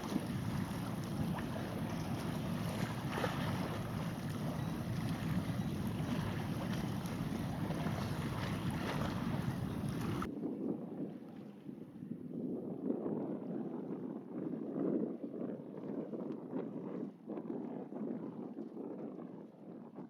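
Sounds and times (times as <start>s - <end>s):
wind buffeting microphone: 0.0s - 11.3s.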